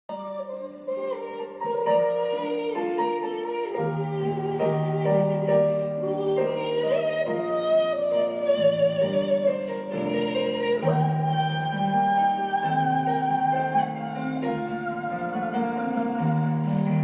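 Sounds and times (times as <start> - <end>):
instrumental accompaniment: 0.1 - 17.0
women's choir singing: 0.2 - 17.0.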